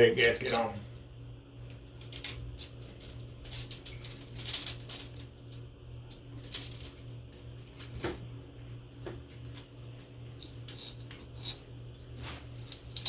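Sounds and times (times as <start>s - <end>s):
steady low hum: 0.0s - 13.0s
engine parts rustling and clicking: 1.9s - 8.3s.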